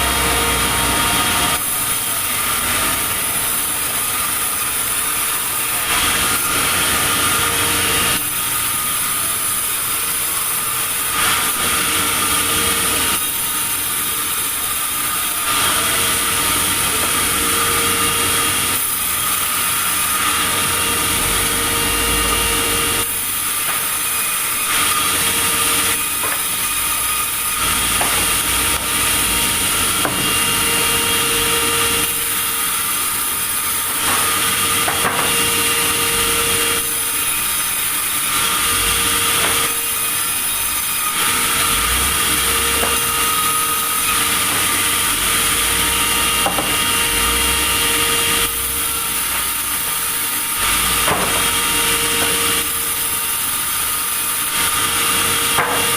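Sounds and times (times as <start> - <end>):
sawmill saw cutting wood: 0.0 - 55.9.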